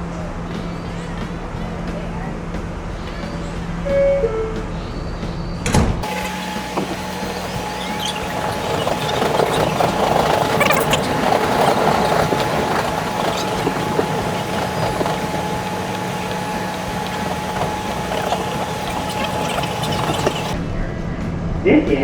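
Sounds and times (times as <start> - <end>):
subway train hum: 0.0 - 20.6
wheel and rail rumble: 0.0 - 20.8
brief train squeals: 3.0 - 20.6.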